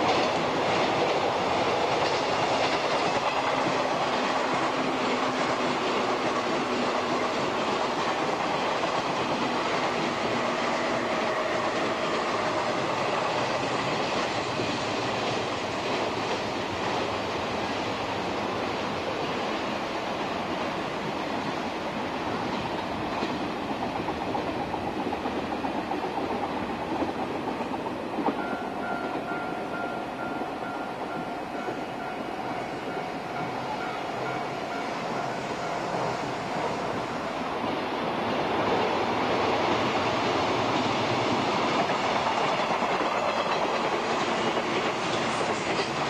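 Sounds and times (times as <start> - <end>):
train wheels clacking over joints: 0.0 - 17.2, 38.5 - 46.0.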